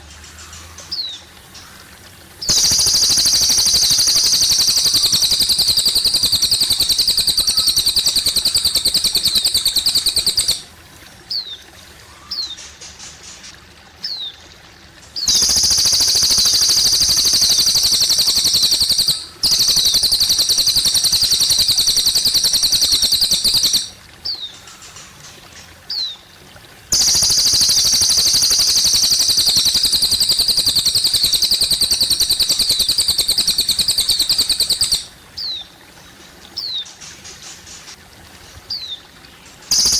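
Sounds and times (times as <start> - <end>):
faint trickling water: 0.0 - 39.9
songbird rapid high trills: 2.4 - 10.7, 15.2 - 25.1, 26.9 - 35.6.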